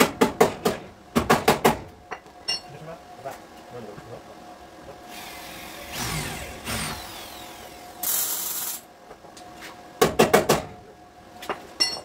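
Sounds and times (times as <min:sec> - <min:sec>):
power tool spinning down: 0:05.1 - 0:08.8
loud air hiss: 0:08.0 - 0:08.8.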